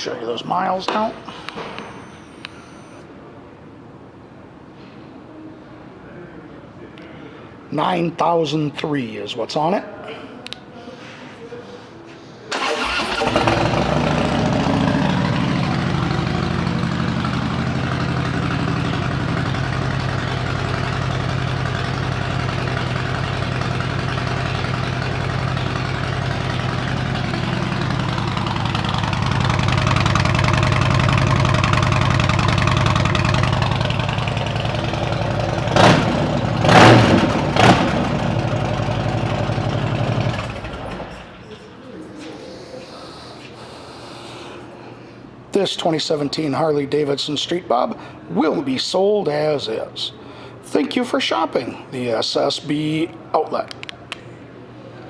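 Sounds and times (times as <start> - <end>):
motorcycle throttle blips: 12.5 - 41.3
motorcycle engine starting and idling: 12.5 - 41.6.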